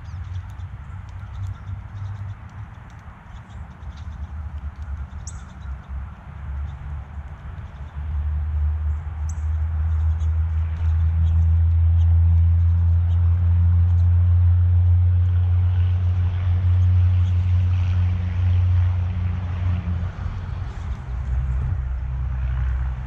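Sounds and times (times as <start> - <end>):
small birds chirping: 0.0 - 14.2
low engine hum: 0.0 - 23.0.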